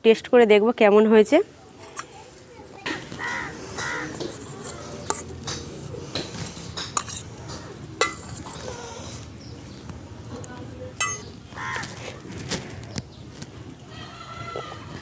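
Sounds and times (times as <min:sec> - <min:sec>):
metal utensils clinking on dishes: 0:02.9 - 0:09.3, 0:10.4 - 0:11.8
crow cawing: 0:03.1 - 0:04.2, 0:11.6 - 0:12.0.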